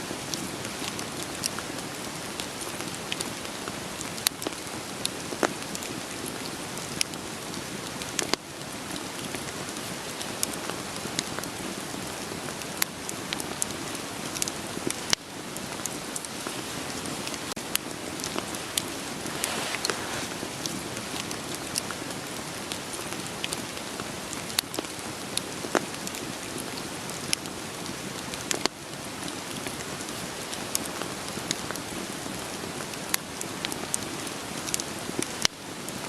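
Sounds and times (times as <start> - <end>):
steady rain falling: 0.0 - 36.0
firewood popping and crackling: 9.2 - 27.8.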